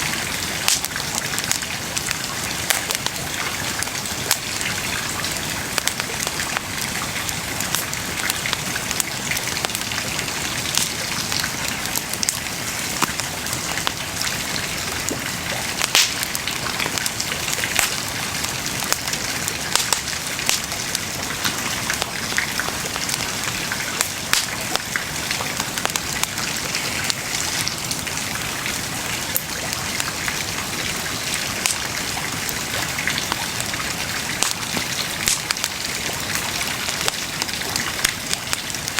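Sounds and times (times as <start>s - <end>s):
bonfire crackling and popping: 0.0s - 38.9s.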